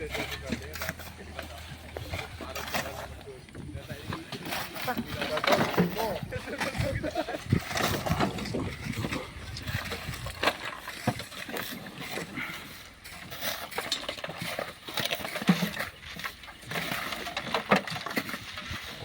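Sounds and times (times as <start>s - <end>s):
hand tools scraping sand and stones: 0.0s - 19.0s.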